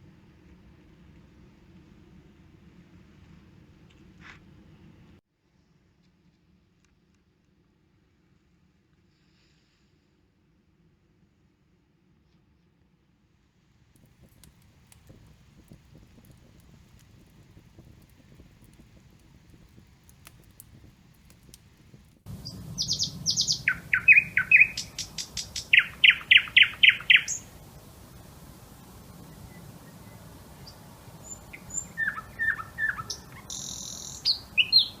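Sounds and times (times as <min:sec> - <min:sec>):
birdsong with sharp repeated notes: 0:22.4 - 0:27.5, 0:29.4 - 0:35.0.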